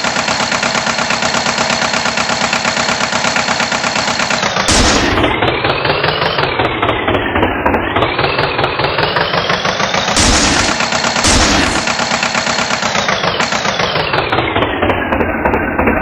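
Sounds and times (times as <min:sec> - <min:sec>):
tractor engine knocking rattle: 0:00.0 - 0:16.0
hissing bursts: 0:04.6 - 0:05.4, 0:09.1 - 0:14.0.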